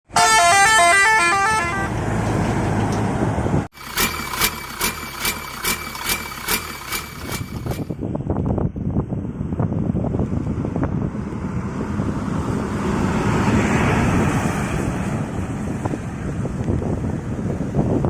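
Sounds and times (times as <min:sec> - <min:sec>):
musical horn run of notes: 0:00.1 - 0:02.0
wind noise: 0:01.4 - 0:03.7, 0:06.8 - 0:18.0.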